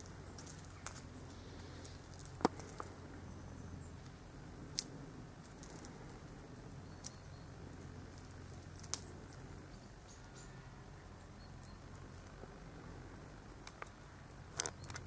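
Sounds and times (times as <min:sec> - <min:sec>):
steady low hum: 0:00.0 - 0:15.0
cat crunching on bird: 0:04.7 - 0:06.3.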